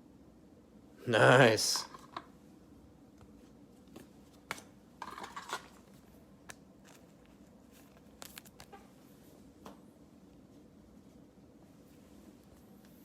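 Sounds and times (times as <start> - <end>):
cards rustling: 3.8 - 8.9.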